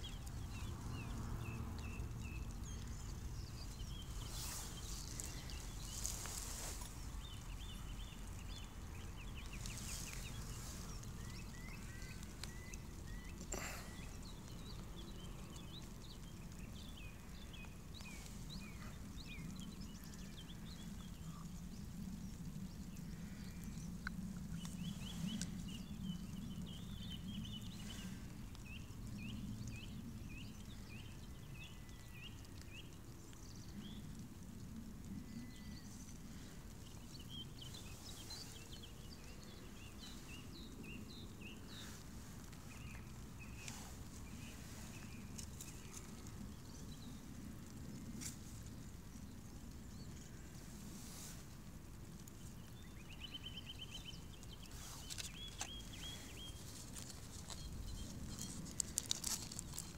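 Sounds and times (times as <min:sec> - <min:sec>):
small bird chirping: 0:00.0 - 0:34.0, 0:52.4 - 0:59.9.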